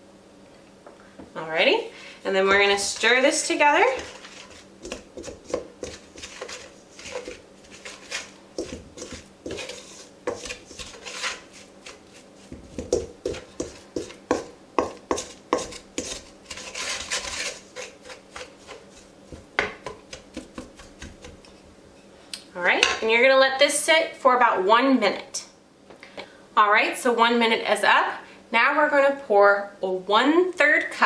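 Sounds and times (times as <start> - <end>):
utensil scraping and clinking bowl: 2.6 - 21.7.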